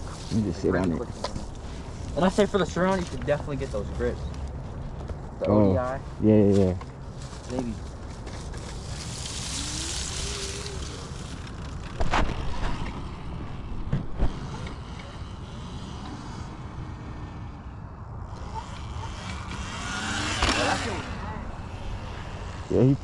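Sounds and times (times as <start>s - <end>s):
distant dirt bike engine revving: 12.0s - 23.0s.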